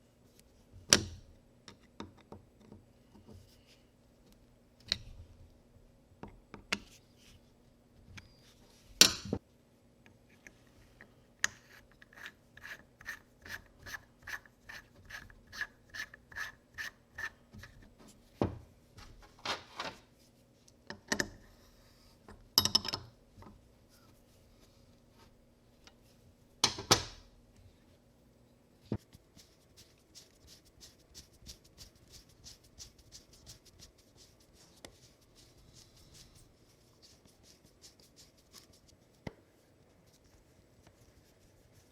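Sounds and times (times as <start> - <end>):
rasping strokes: 11.6 - 17.8.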